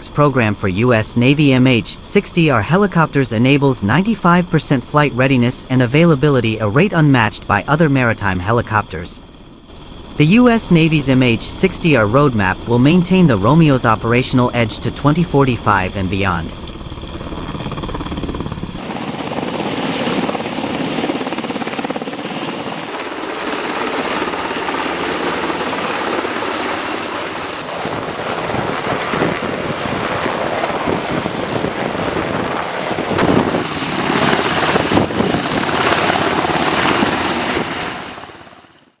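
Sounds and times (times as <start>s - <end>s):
helicopter rotor and engine: 0.0s - 39.0s.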